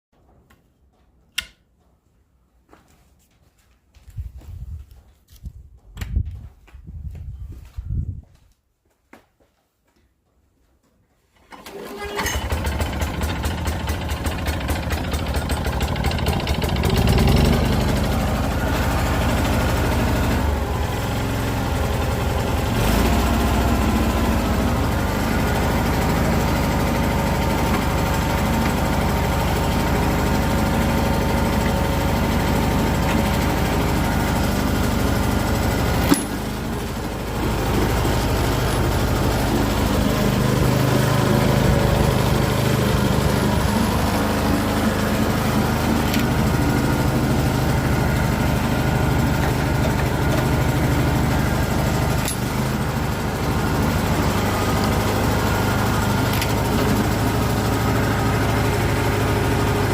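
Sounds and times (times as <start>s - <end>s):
sharp click: 1.3s - 1.6s
cultivator engine running: 11.4s - 59.9s.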